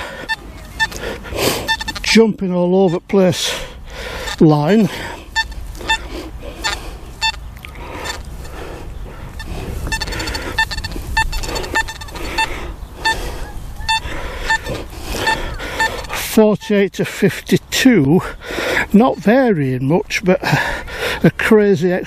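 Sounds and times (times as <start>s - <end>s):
metal detector short beeps: 0.0s - 1.0s, 1.6s - 2.2s, 2.8s - 3.2s, 4.2s - 4.6s, 5.4s - 7.4s, 8.0s - 8.2s, 9.4s - 13.2s, 13.8s - 16.2s.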